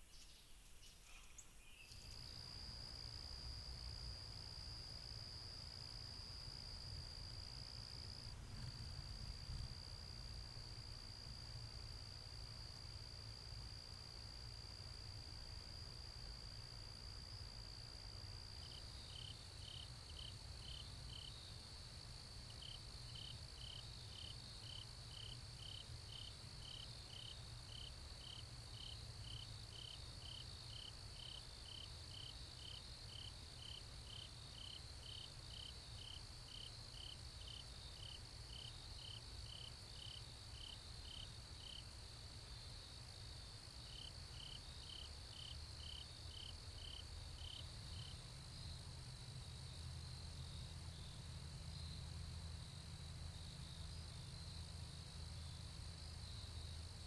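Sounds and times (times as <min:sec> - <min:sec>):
crickets trilling: 0:00.0 - 0:04.4
insect chirping: 0:00.0 - 0:08.2, 0:10.5 - 0:57.0.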